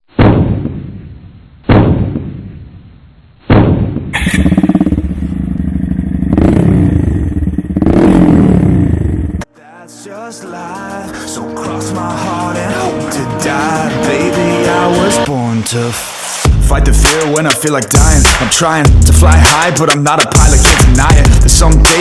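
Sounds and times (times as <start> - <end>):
motorcycle engine idling and revving: 4.2 - 9.4.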